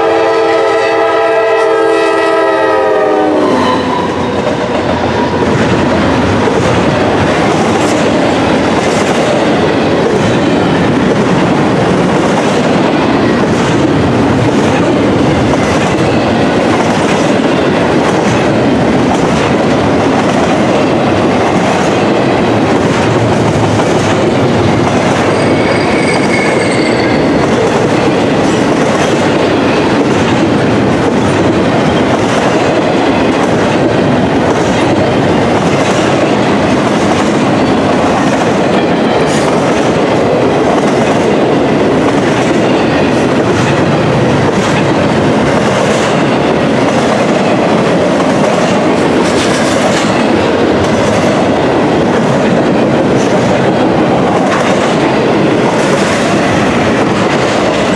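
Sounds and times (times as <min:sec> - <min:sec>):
steel wheels rumbling on rail: 0:00.0 - 0:57.9
high wheel squeal: 0:25.2 - 0:27.5.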